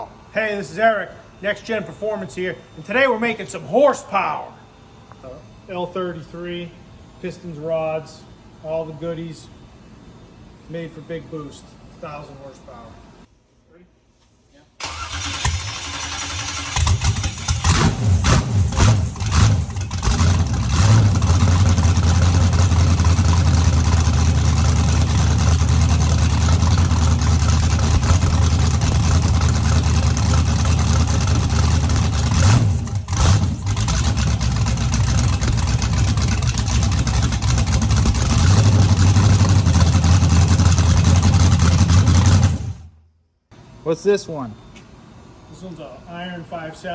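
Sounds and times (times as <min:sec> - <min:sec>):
car engine running on open headers: 0:16.8 - 0:42.9.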